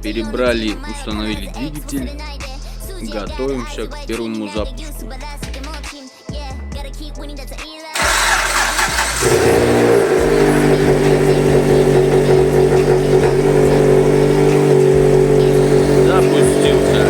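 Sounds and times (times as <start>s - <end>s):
car engine starting and idling: 8.0s - 17.0s.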